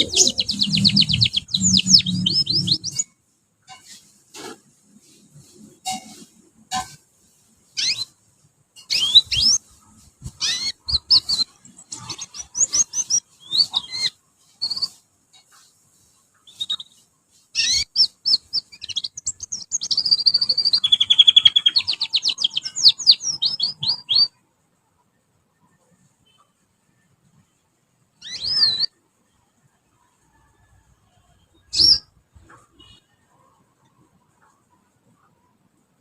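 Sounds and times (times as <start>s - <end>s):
canary singing: 0.0s - 3.1s, 7.7s - 8.2s, 8.8s - 24.4s, 28.2s - 29.0s, 31.5s - 33.3s.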